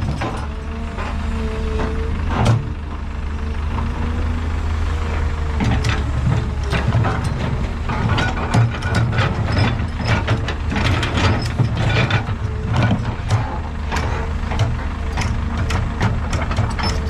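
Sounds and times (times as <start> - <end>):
diesel machinery humming: 0.0 - 17.0
metallic clanks and rattles: 5.6 - 17.0.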